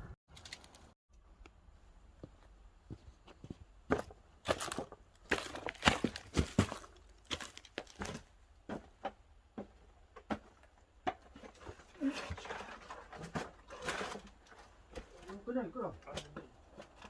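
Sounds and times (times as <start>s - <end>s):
firewood crackling: 3.9s - 8.3s.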